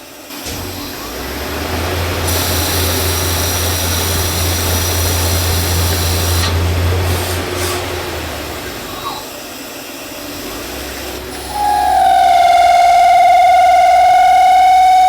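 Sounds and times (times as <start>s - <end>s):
metal cutting whine: 0.4s - 9.6s, 10.2s - 15.0s
machine spindle humming: 0.8s - 9.4s, 10.3s - 15.0s.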